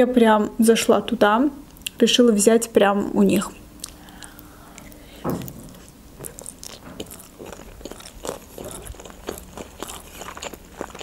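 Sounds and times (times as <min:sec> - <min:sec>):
biting into sushi: 0:03.8 - 0:11.0
chewing with mouth clicks: 0:03.8 - 0:11.0.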